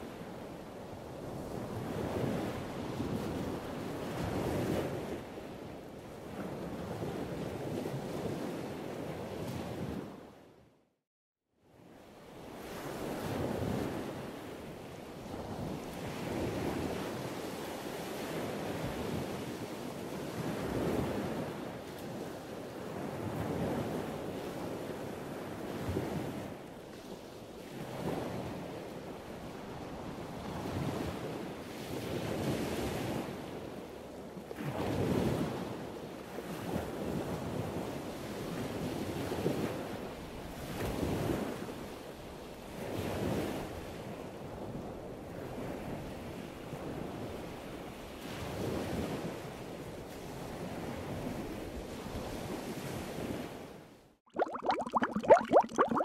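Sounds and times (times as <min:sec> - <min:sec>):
exhaled bubbles: 0:54.3 - 0:56.0.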